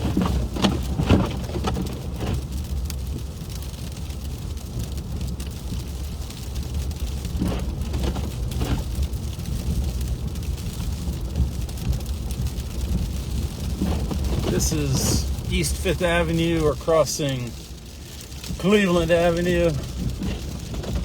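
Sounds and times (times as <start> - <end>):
slush spattering car: 0.0 - 2.7, 11.9 - 21.0
tyres and engine rumble: 0.0 - 21.0.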